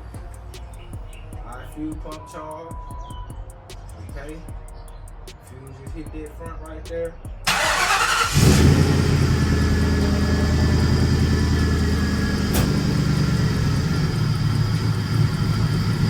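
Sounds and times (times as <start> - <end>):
car engine idling: 7.5 - 16.0.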